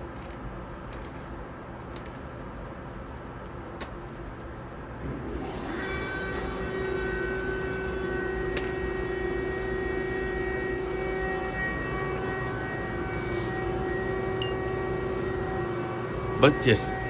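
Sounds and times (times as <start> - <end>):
machine hum: 5.0 - 17.0.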